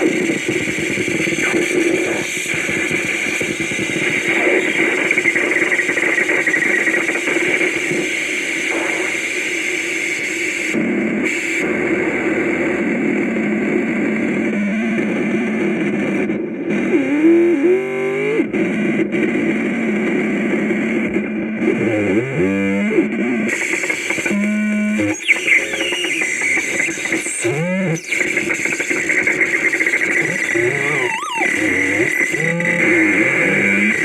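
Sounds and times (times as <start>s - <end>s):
synthesizer static drone: 0.0s - 34.0s
wavering pitch sweeps: 30.2s - 32.8s.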